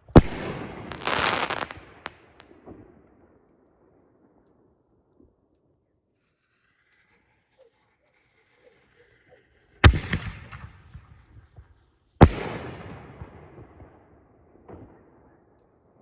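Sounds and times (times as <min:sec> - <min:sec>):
firework bangs: 0:00.0 - 0:02.8.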